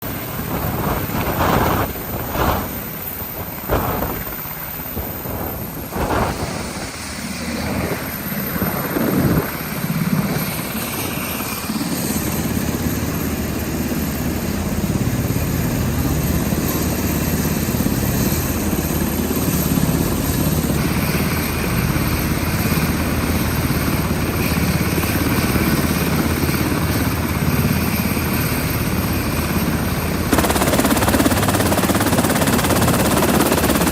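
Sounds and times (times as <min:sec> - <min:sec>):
helicopter running: 0:00.0 - 0:33.9.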